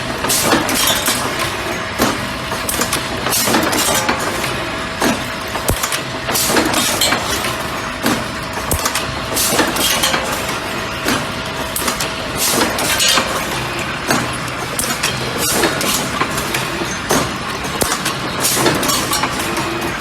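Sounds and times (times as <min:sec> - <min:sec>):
sharp machine clicks and knocks: 0:00.2 - 0:20.0
machine humming: 0:04.5 - 0:12.3.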